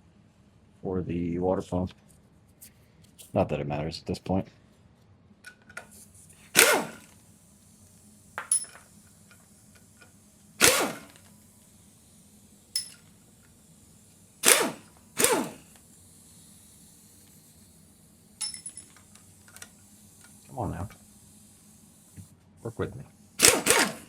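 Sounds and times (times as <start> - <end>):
electric impact wrench bursts: 6.5 - 7.2, 10.3 - 24.0
clicks of tool and metal handling: 8.4 - 9.4, 12.8 - 13.1, 18.4 - 19.7.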